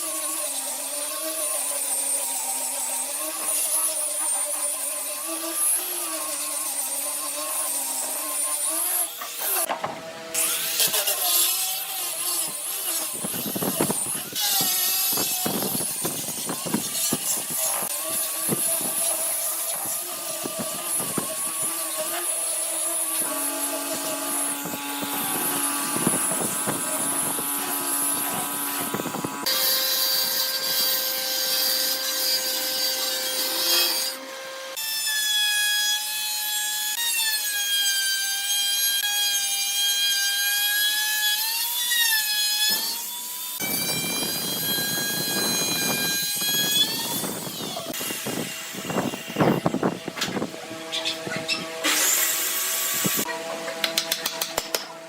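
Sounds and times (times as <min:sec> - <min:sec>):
power tool motor whine: 0:00.0 - 0:31.1, 0:43.6 - 0:53.6
sawing and grinding wood: 0:00.0 - 0:55.0.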